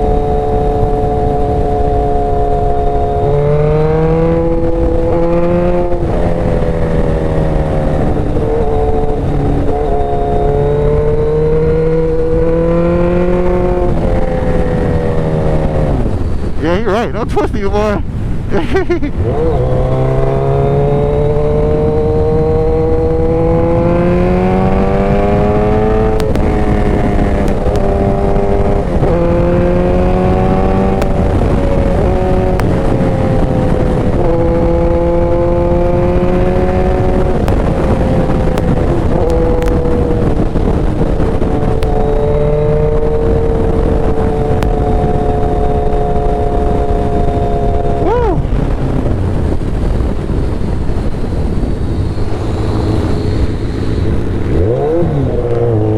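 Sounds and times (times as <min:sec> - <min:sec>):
wind and road noise: 0:00.0 - 0:55.9
motorcycle engine running: 0:18.5 - 0:55.9.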